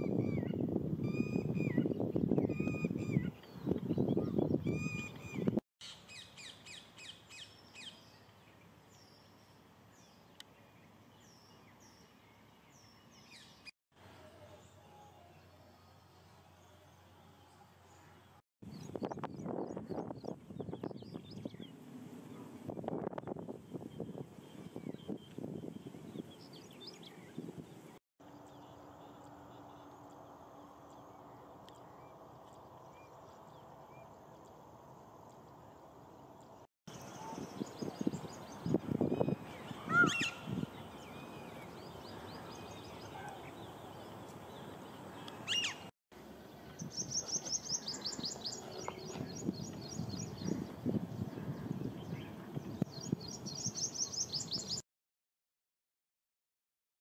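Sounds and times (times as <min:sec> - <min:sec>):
high bird chirps: 0:36.9 - 0:43.6, 0:45.2 - 0:45.9
sharp high bird calls: 0:39.1 - 0:41.7, 0:45.3 - 0:45.9.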